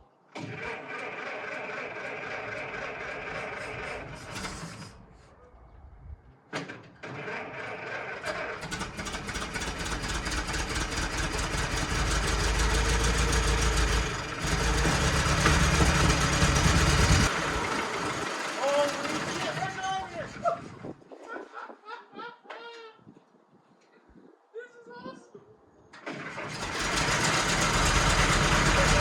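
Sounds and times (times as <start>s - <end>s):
car engine running: 8.7s - 19.8s, 26.6s - 29.0s.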